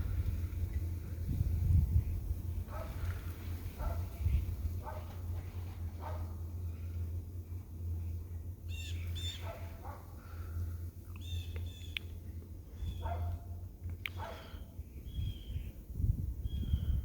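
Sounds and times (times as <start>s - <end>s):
steady low hum: 0.0s - 17.0s
birds squawking: 8.7s - 10.6s.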